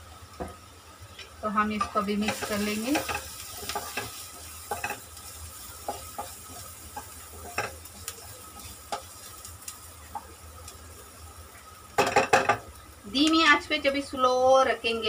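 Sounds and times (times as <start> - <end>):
onions sizzling in oil: 0.0 - 15.0
spatula scraping a pan: 1.8 - 9.4.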